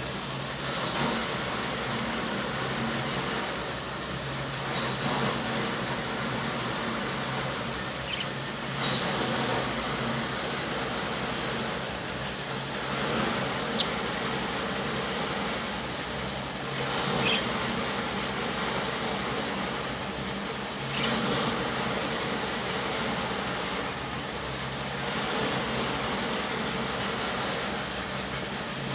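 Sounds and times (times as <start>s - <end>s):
budgie chirps: 8.0s - 9.1s, 17.2s - 17.5s.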